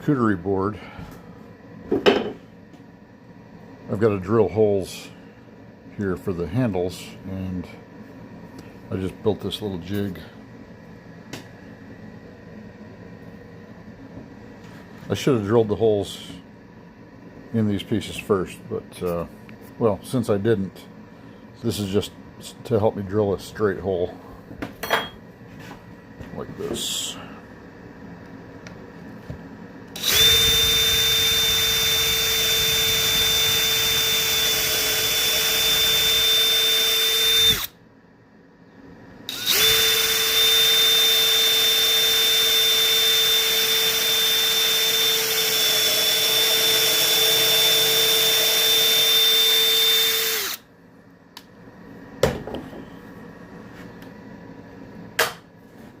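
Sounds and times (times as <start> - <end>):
electric drill whining: 30.0 - 37.7, 39.3 - 50.7.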